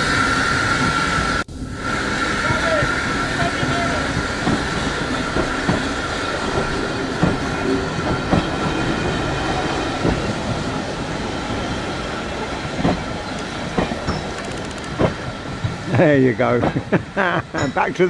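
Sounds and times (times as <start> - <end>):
train rumbling along track: 0.0 - 18.0
wheels clicking over rail joints: 12.7 - 15.8.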